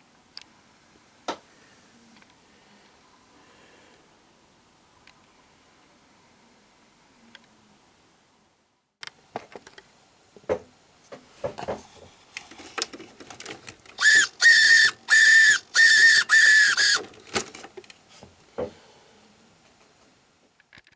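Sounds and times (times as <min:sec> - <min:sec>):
high whistle-like horn blasts: 0:14.0 - 0:17.0.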